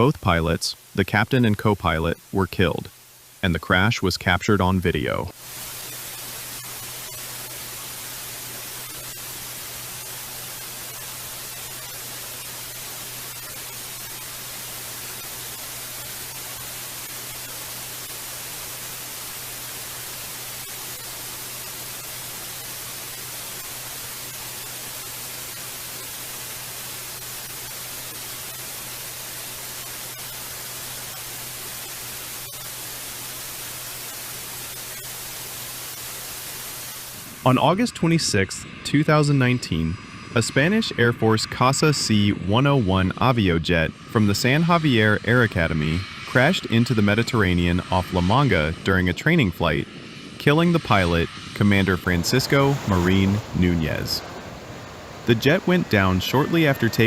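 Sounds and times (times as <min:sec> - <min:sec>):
static-like hiss: 0:00.0 - 0:57.0
low hum: 0:45.6 - 0:57.0.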